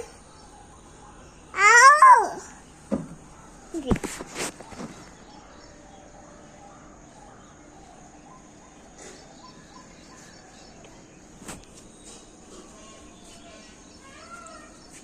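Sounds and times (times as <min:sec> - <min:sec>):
steady outdoor hiss: 0:00.0 - 0:15.0
faint bird chirps: 0:04.6 - 0:11.3.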